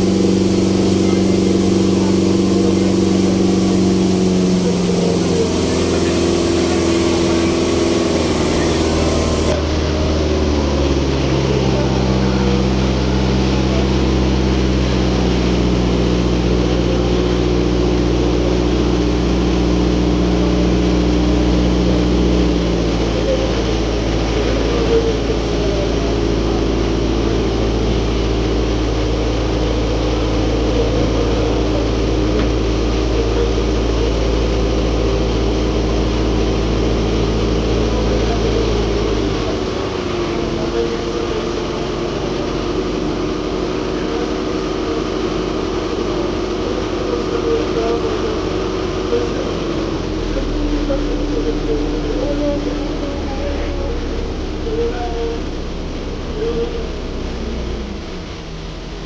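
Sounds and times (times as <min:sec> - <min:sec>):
ferry engine humming: 0:00.0 - 0:09.6.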